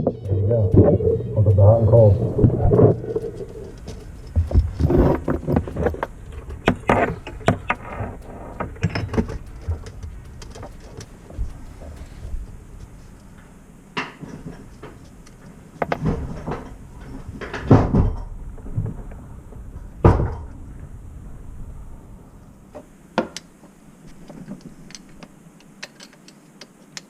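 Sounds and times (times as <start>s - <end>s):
knocks and clunks: 0.0s - 20.9s.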